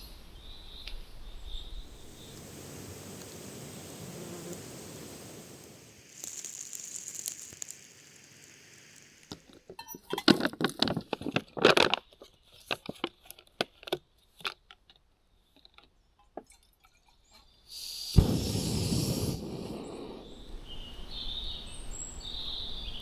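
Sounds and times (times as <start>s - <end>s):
faint hiss: 0.0s - 9.7s, 17.6s - 23.0s
crinkling plastic rustles: 6.0s - 15.0s.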